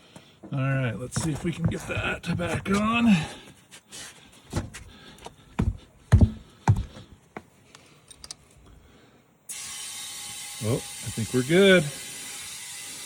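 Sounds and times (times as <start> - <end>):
tyre handling thumps and clicks: 1.0 - 3.3, 4.5 - 7.1.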